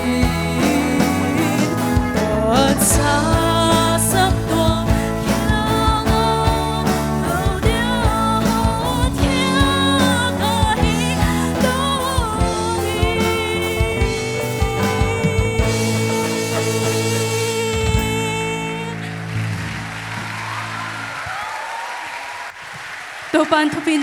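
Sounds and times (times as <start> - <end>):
drum beat: 0.0 - 18.7
voices singing gospel: 0.0 - 19.2
sustained instrumental chords: 0.0 - 20.6.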